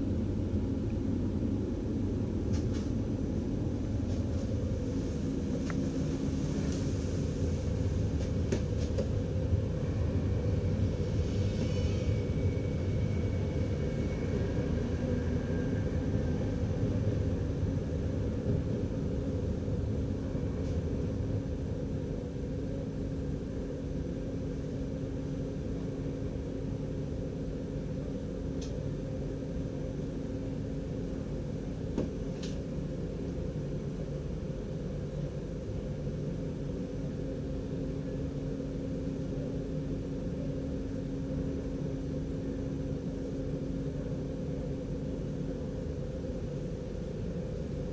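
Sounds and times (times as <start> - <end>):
train rumbling along track: 0.0 - 34.2
faint whine: 0.0 - 47.9
low steady hum: 0.0 - 47.9.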